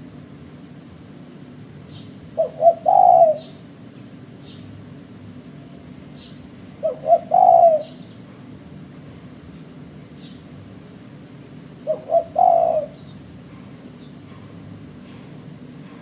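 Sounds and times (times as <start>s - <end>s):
dove cooing: 2.3s - 3.7s, 6.8s - 8.1s, 11.8s - 13.8s.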